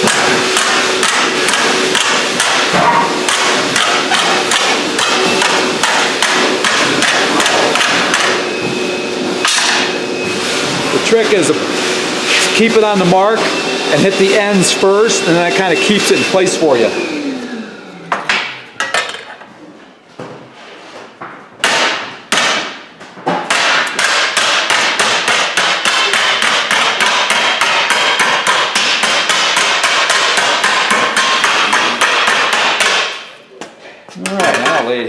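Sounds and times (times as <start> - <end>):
hammer striking sheet steel: 0.0 - 8.6, 9.4 - 10.0, 21.6 - 33.3.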